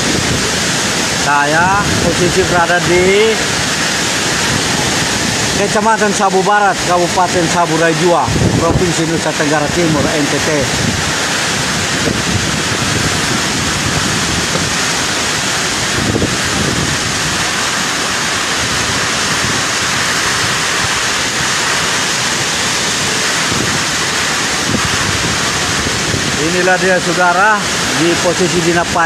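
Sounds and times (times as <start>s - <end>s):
wind buffeting microphone: 0.0s - 28.9s
storm wind rushing: 0.0s - 29.0s.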